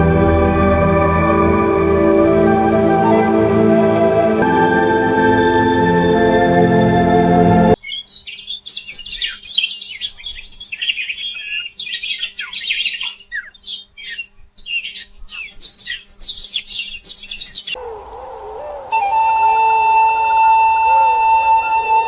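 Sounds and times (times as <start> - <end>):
organ-like music: 0.0 - 7.8
wavering low tone: 0.0 - 7.8
birds chirping and singing: 7.7 - 22.0.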